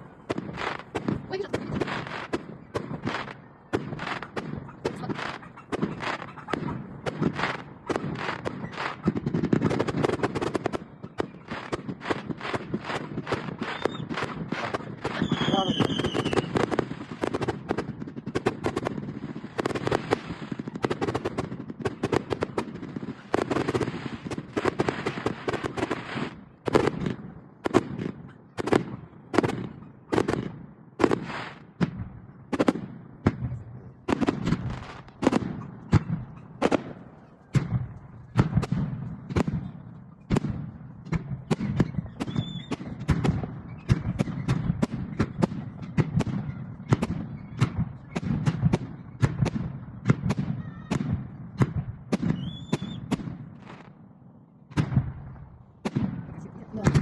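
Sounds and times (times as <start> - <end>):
fireworks bangs and booms: 0.0 - 57.0.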